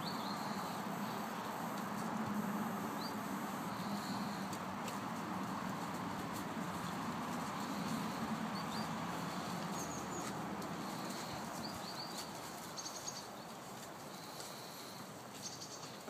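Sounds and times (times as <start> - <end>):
small birds chirping: 0.0 - 1.6, 6.8 - 16.0
steady background hiss: 0.0 - 16.0.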